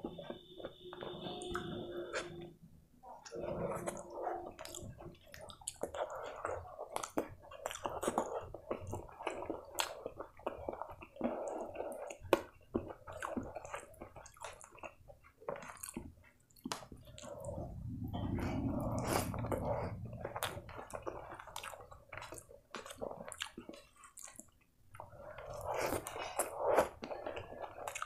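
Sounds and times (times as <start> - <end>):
wet chewing and lip-smacking: 3.2 - 18.4, 19.0 - 28.0.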